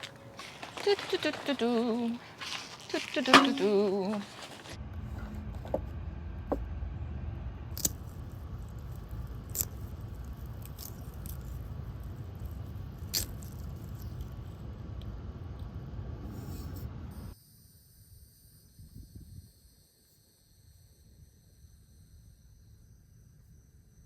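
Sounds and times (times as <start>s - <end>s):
camp gear clicking and knocking: 0.0s - 5.9s.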